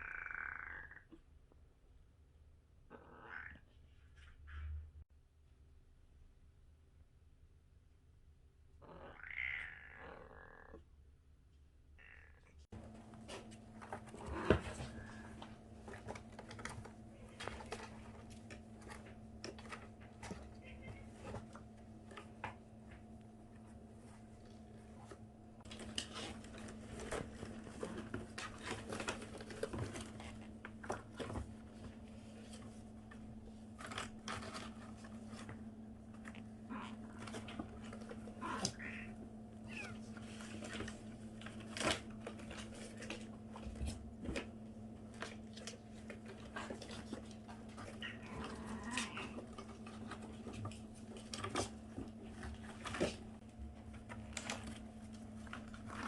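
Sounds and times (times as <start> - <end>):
kitten mewing: 2.9 - 3.6, 8.8 - 10.8, 38.4 - 40.0.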